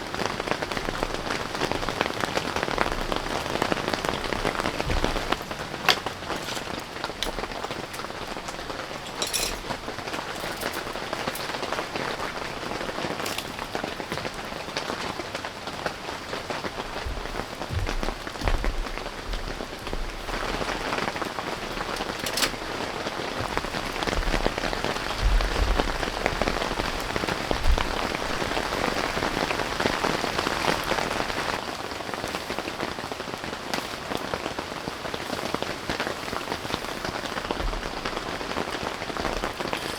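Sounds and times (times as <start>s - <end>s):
steady rain falling: 0.0s - 39.9s
low thumps: 16.9s - 22.1s.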